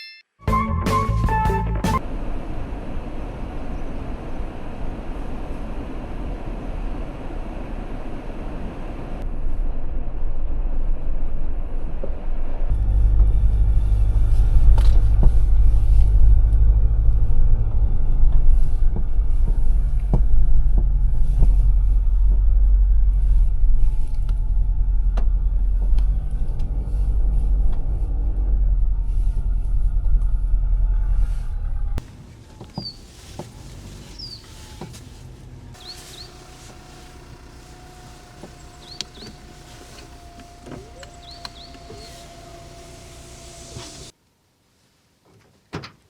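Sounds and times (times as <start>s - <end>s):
pickup truck rumble: 0.5s - 44.1s
bird chirps: 32.7s - 33.0s, 34.1s - 34.6s, 35.8s - 43.6s.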